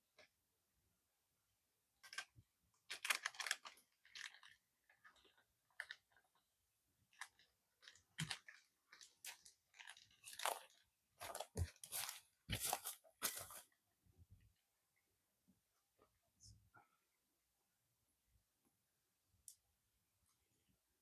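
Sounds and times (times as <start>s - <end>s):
crunching and crackling: 2.9s - 6.4s, 7.1s - 13.6s.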